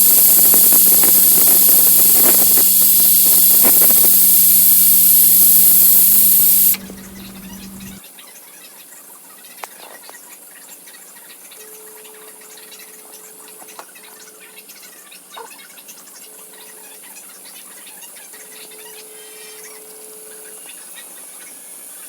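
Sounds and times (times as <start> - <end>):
pressure cooker hissing: 0.0 - 8.0
thin whistling tone: 0.0 - 8.0.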